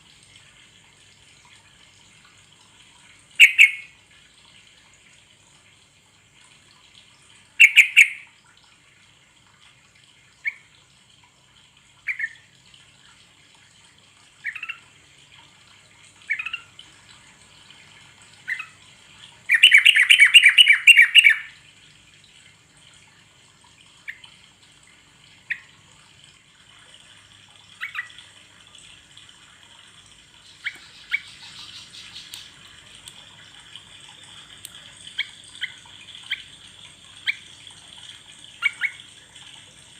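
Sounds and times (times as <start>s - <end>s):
bulbul chirping and chattering: 3.4s - 3.9s, 19.5s - 21.5s, 30.4s - 32.7s.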